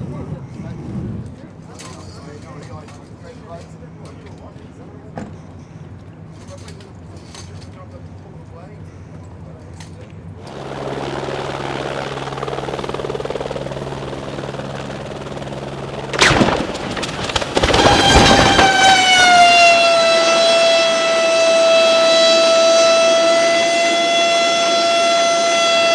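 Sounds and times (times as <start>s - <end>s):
helicopter drone: 0.0s - 25.9s
loud crash impact: 16.2s - 19.0s
siren-like tone: 17.6s - 25.9s.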